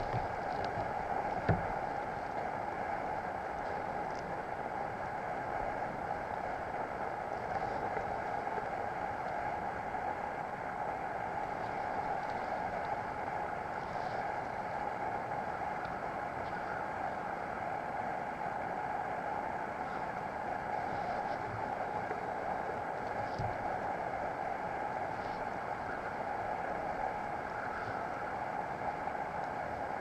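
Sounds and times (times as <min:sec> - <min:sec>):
water rushing along kayak hull: 0:00.0 - 0:30.0
knock on kayak: 0:01.4 - 0:01.7.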